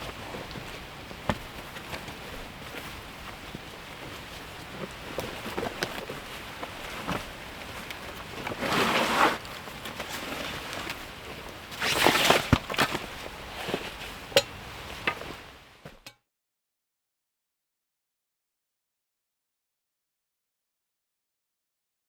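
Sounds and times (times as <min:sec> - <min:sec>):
outdoor rustling: 0:00.0 - 0:16.2.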